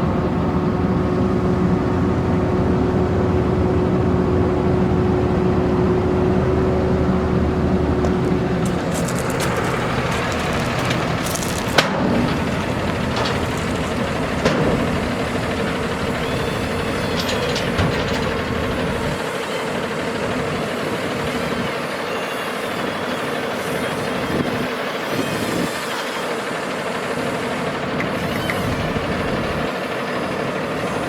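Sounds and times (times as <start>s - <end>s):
diesel truck engine running: 0.0s - 31.0s
light clicks and knocks: 8.0s - 19.2s.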